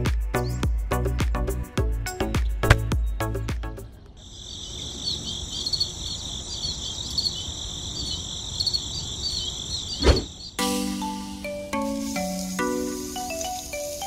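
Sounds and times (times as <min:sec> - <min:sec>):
insects chirping: 0:04.1 - 0:14.0.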